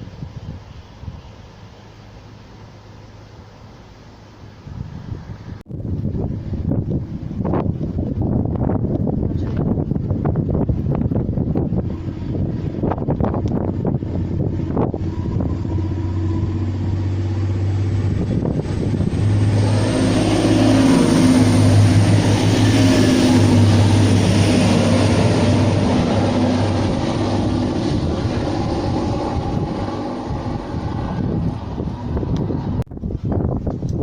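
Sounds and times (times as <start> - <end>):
train passing: 10.0 - 32.8.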